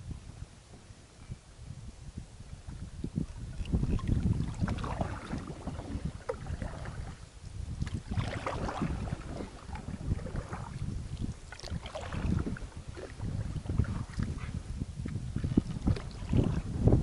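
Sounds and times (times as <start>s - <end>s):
wind buffeting microphone: 0.0s - 17.0s
paddle splashing in water: 3.2s - 7.2s, 7.8s - 16.7s.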